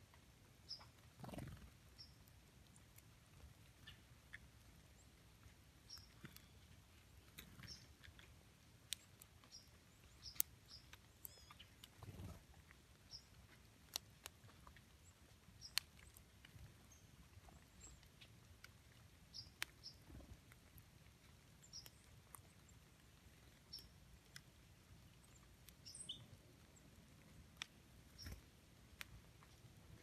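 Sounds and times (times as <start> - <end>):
bird chip calls: 0.6 - 2.9, 3.8 - 5.1, 5.8 - 8.2, 8.9 - 13.4, 15.0 - 16.2, 19.3 - 20.3, 23.4 - 24.0, 25.2 - 26.4.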